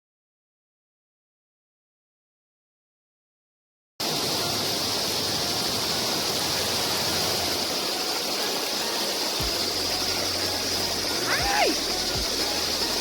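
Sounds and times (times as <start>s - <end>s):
creek water rushing: 4.0s - 13.0s.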